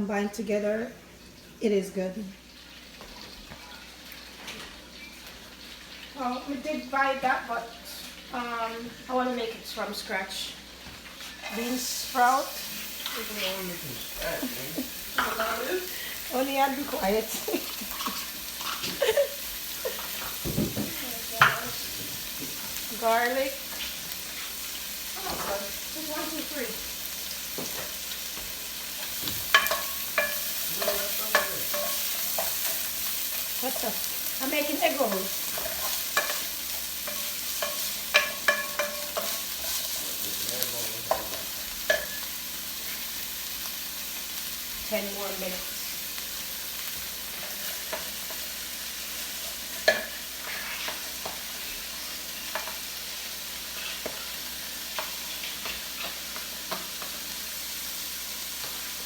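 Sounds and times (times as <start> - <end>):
food sizzling in oil: 0.0 - 59.0
metal utensil clinking on pan: 29.5 - 32.9, 35.0 - 40.0, 41.1 - 42.3, 49.8 - 50.2.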